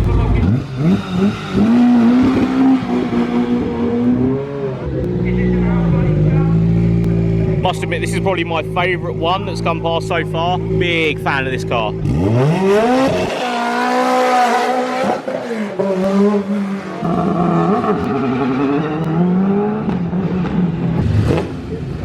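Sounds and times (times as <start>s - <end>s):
rally car accelerating through gears: 0.1s - 7.6s, 11.9s - 22.0s.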